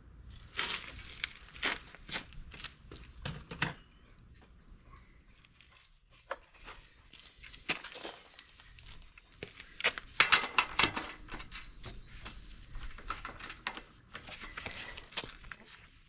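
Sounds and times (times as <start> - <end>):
insects chirping faintly: 0.0 - 16.0
hand tools clicking and knocking: 9.8 - 14.9.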